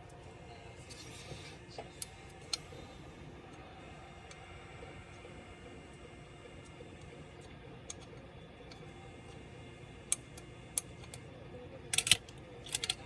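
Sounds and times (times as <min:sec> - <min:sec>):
laptop parts clicking: 0:11.9 - 0:13.0.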